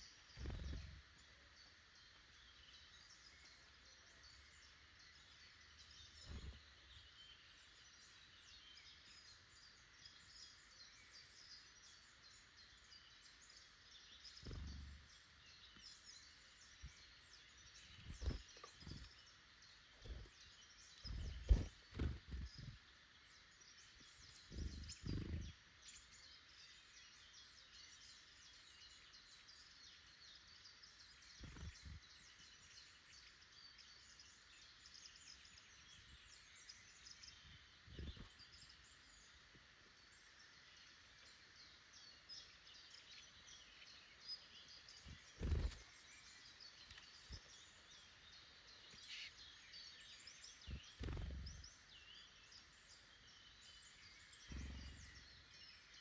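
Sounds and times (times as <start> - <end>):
songbirds singing faintly: 0.0 - 56.0
dull thumps near microphone: 21.1 - 22.7.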